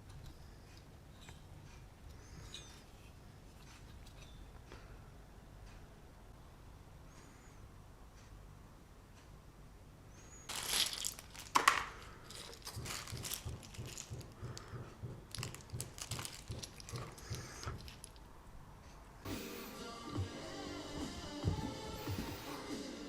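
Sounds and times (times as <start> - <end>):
plastic packaging crinkling: 10.5 - 14.6, 15.2 - 18.3
music: 19.3 - 23.0.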